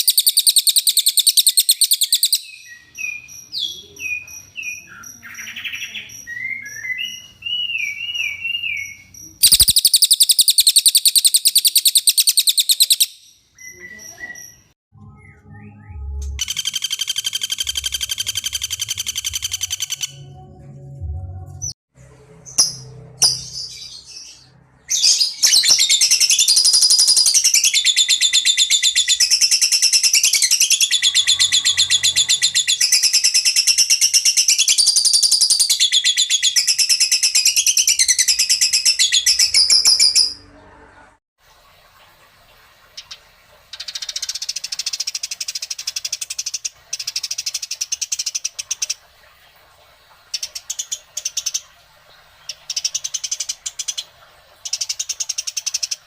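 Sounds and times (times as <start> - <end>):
songbird chattering song: 0.0 - 20.3
bird chirps: 0.0 - 20.5, 22.4 - 40.8.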